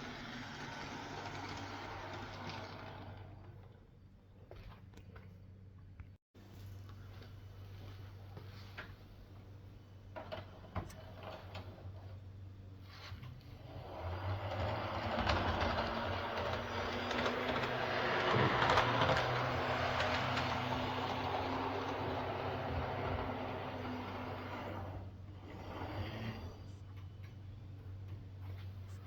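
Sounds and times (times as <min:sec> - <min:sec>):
model train motor whirring: 0:00.0 - 0:03.8, 0:13.4 - 0:26.8
wheels clicking over rails: 0:00.0 - 0:04.0, 0:10.0 - 0:29.0.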